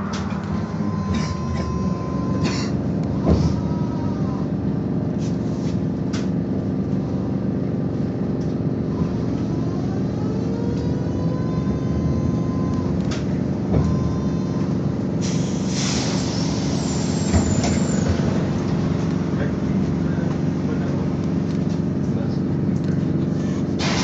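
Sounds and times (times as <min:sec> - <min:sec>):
trolleybus running rumble: 0:00.0 - 0:24.0
pneumatic air hiss: 0:15.2 - 0:18.1.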